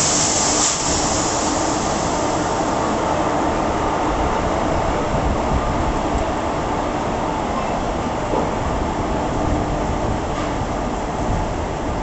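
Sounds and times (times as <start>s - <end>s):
short hiss: 0.0s - 2.1s
train rumbling on rails: 0.0s - 12.0s.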